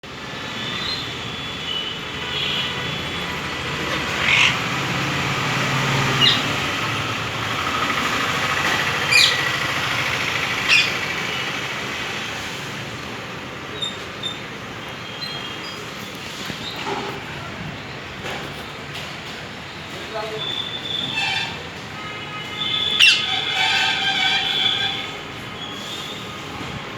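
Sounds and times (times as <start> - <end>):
parakeet squawking: 3.9 - 5.2, 6.0 - 6.8, 8.8 - 9.6, 10.4 - 11.2, 22.8 - 25.0.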